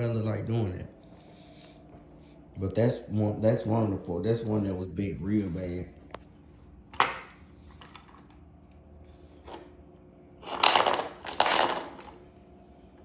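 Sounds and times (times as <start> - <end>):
metal parts clattering and scraping: 10.4 - 12.2.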